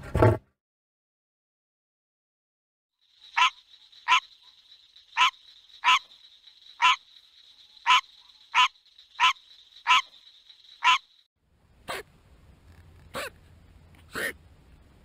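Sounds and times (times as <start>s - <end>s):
frog barking croaks: 3.1s - 11.3s.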